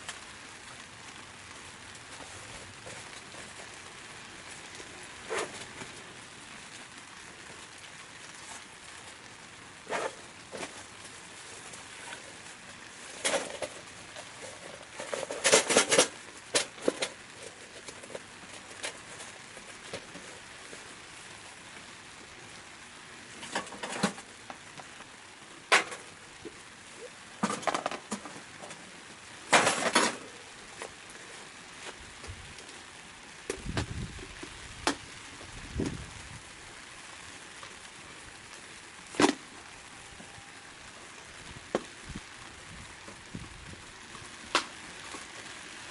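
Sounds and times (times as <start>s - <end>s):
steady hiss: 0.0s - 45.9s
objects knocking and clattering: 27.4s - 28.8s.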